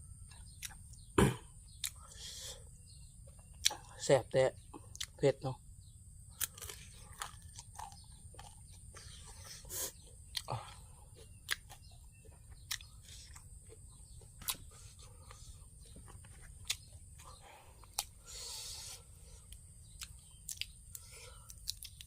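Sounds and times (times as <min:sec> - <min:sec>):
steady low hum: 0:00.0 - 0:22.0
person chewing crunchy food: 0:00.4 - 0:01.1, 0:06.3 - 0:22.0.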